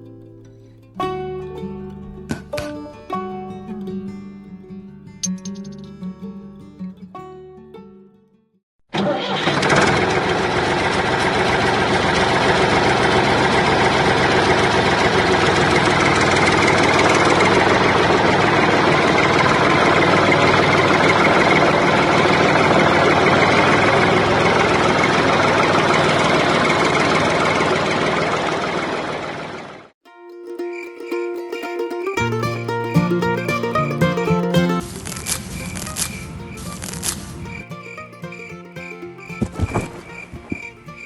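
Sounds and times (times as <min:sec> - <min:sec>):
tractor engine idling: 0:09.8 - 0:29.7.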